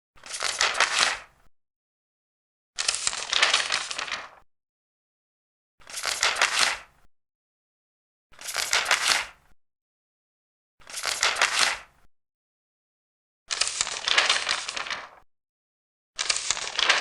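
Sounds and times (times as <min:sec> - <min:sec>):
paper pages turning: 0:00.2 - 0:01.3, 0:02.8 - 0:04.4, 0:05.8 - 0:06.9, 0:08.4 - 0:09.4, 0:10.8 - 0:11.9, 0:13.5 - 0:15.2, 0:16.2 - 0:17.0.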